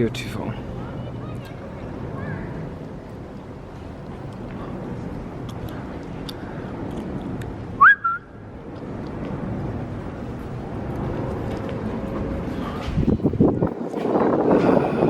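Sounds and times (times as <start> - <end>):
steady rushing noise: 0.0 - 15.0
swooping whistle-like note: 7.8 - 8.4.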